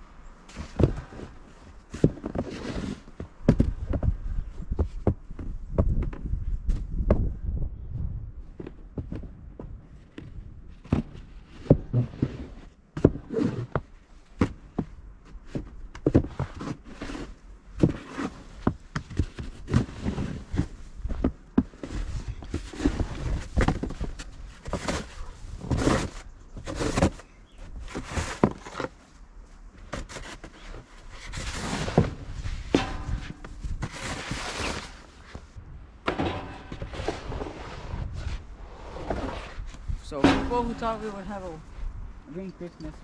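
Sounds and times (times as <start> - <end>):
shovel scraping snow: 2.2 - 3.1, 19.7 - 20.6, 30.1 - 35.4, 36.4 - 41.6.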